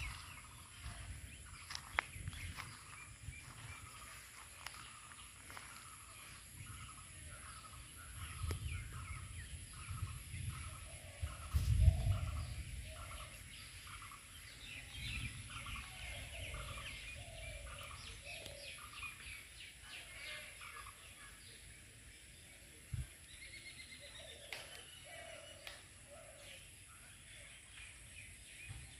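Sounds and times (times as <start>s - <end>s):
low rumble on microphone: 0.0s - 5.2s, 5.8s - 18.2s
birds twittering chirps: 0.0s - 28.9s.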